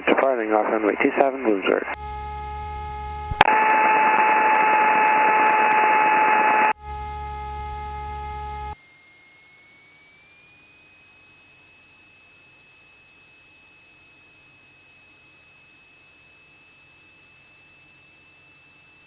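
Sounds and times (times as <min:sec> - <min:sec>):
radio whistling tone over hiss: 0:02.0 - 0:19.0
radio click: 0:03.3 - 0:03.6.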